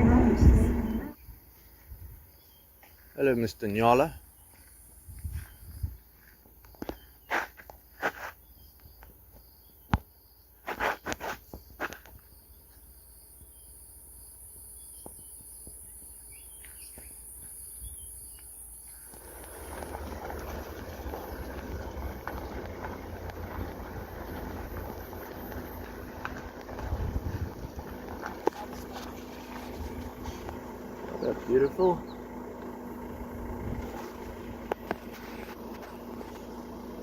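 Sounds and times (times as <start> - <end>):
vehicle noise: 0.0 - 1.2, 18.7 - 37.0
insects trilling: 0.8 - 37.0
rush of wind: 26.7 - 28.0.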